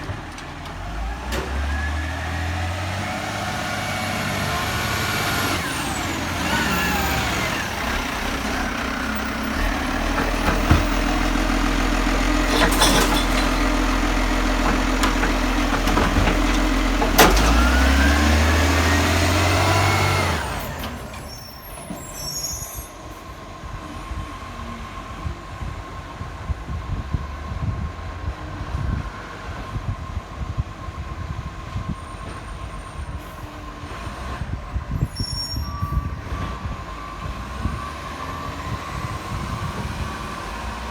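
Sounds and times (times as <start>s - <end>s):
garbage truck engine revving: 0.0s - 22.0s, 35.9s - 40.9s
quiet street sound: 0.0s - 40.9s.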